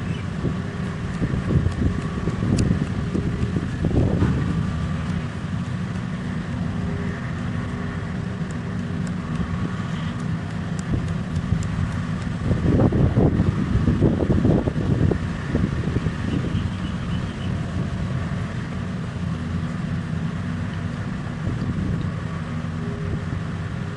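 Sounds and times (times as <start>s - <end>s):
heavy machine engine running: 0.0s - 23.9s
faint ticks: 8.4s - 12.4s.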